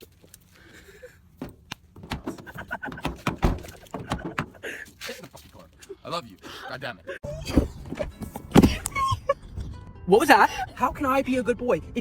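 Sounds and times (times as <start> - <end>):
car door thunk: 1.4 - 4.6.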